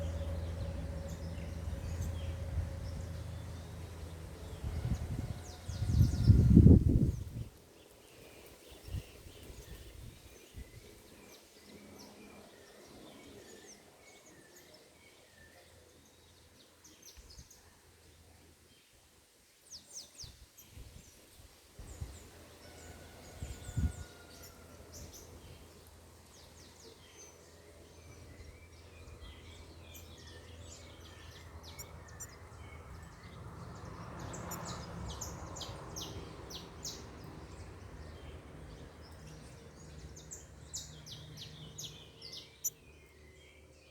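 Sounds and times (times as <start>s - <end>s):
low steady rumble: 0.0s - 7.5s
birds chirping: 0.0s - 17.6s, 26.4s - 43.9s.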